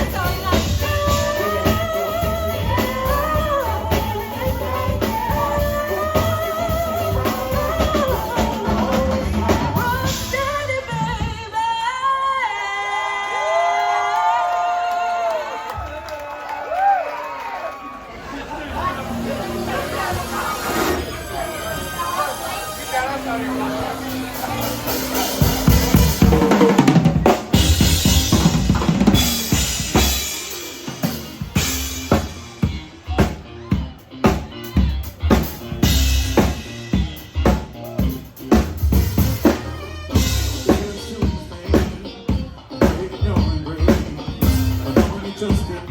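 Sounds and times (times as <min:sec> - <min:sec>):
live band playing: 0:00.0 - 0:12.2, 0:18.2 - 0:45.9
person singing: 0:00.0 - 0:13.4, 0:39.4 - 0:45.9.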